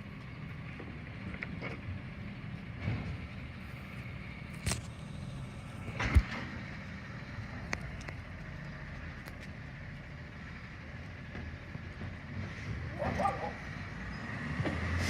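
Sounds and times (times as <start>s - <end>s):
truck engine idling: 0.0s - 14.9s.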